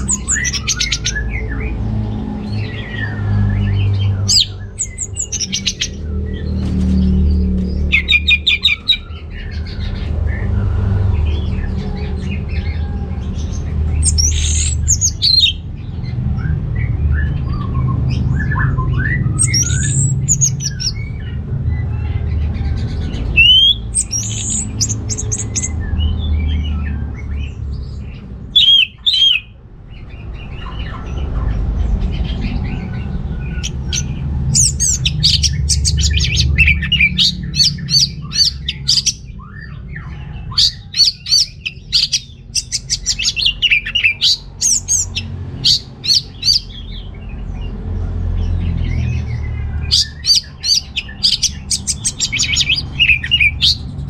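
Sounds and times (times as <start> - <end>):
thrush singing: 0.0 - 9.4, 13.7 - 15.6, 23.0 - 25.9, 28.5 - 29.5, 32.3 - 39.7, 40.4 - 47.2, 49.8 - 54.0
steady low rumble: 0.0 - 54.0.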